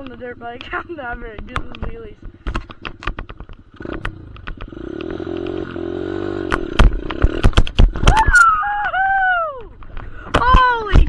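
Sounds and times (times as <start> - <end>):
dirt bike engine revving: 3.7 - 8.2
loud knocks and thumps: 6.5 - 8.4
rider whooping: 7.9 - 10.8.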